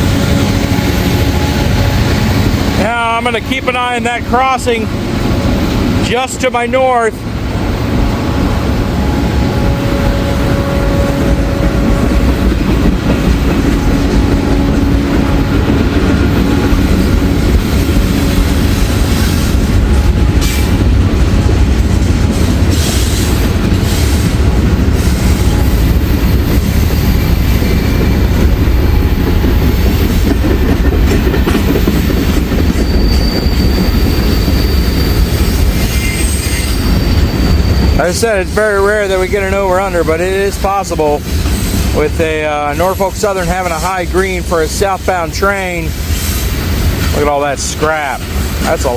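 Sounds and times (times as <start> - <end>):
train wheels rumbling on rails: 0.0 - 48.9
high wheel squeal: 22.7 - 30.2, 32.6 - 42.0.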